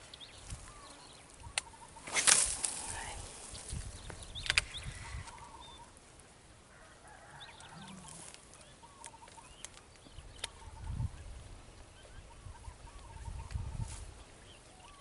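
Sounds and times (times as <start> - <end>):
faint trilled bird calls: 0.0 - 6.0, 7.6 - 11.1
sharp click: 4.4 - 4.7.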